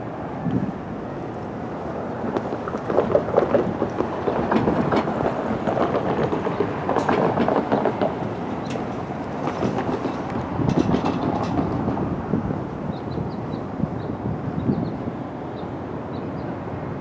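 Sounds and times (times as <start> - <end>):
rail vehicle rumble: 0.0 - 17.0
wheels clacking over rail joints: 1.2 - 12.9.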